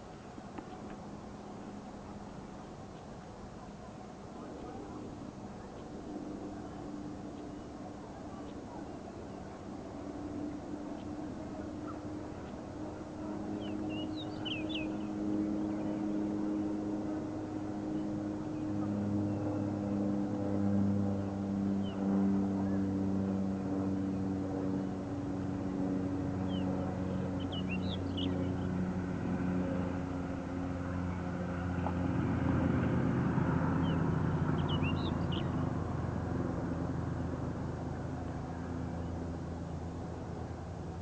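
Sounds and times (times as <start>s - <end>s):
engine humming: 0.0s - 41.0s
high bird calls: 13.5s - 16.0s, 33.8s - 35.6s.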